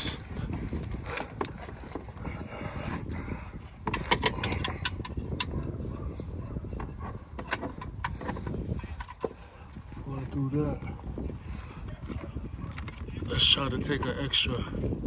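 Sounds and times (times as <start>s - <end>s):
wrench clinking on metal bolt: 3.8s - 9.4s.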